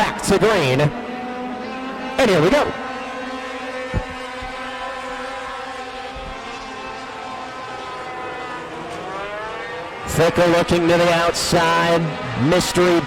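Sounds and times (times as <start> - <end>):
racing truck engines: 0.0 - 13.0
short thump: 3.9 - 4.6.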